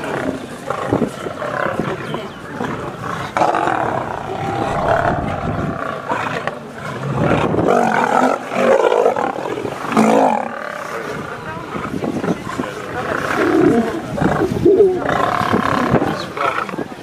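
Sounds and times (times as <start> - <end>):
lions roaring: 2.7 - 10.9.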